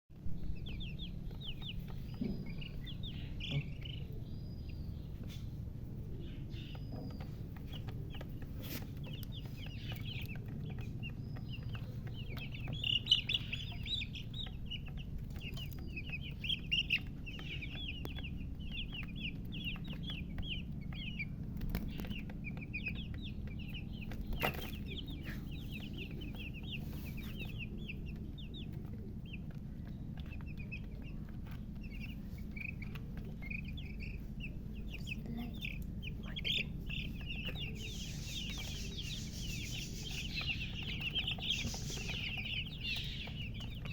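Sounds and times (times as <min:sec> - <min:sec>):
steady low hum: 0:00.1 - 0:43.9
chicks peeping: 0:00.2 - 0:43.9.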